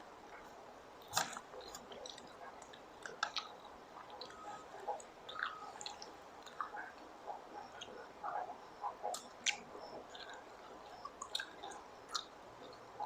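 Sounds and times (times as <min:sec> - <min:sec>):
close chewing: 0:00.3 - 0:08.5, 0:09.1 - 0:12.8
wet mouth clicks: 0:01.1 - 0:06.8, 0:09.1 - 0:10.4, 0:11.0 - 0:12.3.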